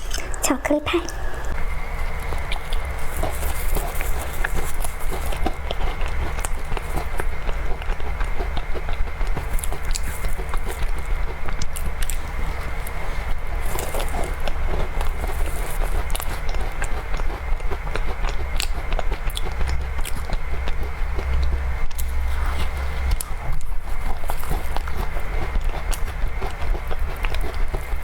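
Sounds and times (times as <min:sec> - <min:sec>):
chewing with wet mouth clicks: 0:01.0 - 0:28.0
low rumble: 0:18.6 - 0:25.0.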